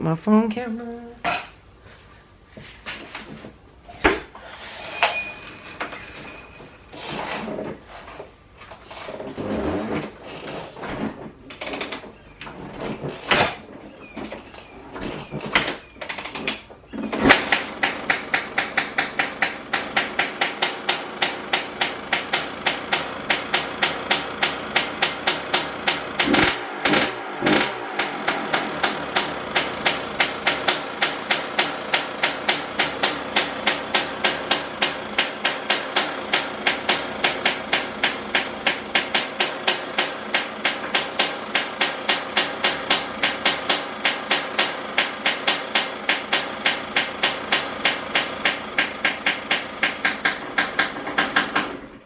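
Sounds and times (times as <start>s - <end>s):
dirt bike kick-start: 8.8s - 52.0s
two-stroke engine popping: 14.4s - 51.8s.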